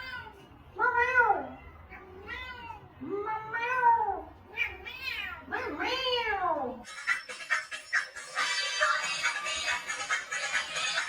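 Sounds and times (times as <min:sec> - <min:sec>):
cat meowing: 0:00.0 - 0:00.4, 0:01.0 - 0:06.3.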